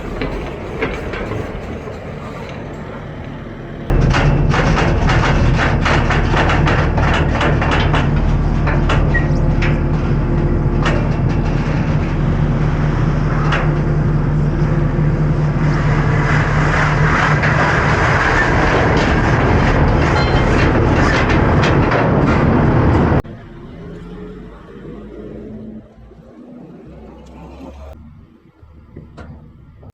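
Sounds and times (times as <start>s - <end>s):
sharp clanks and rattles: 0.0s - 24.1s
loader diesel engine running: 0.0s - 29.9s.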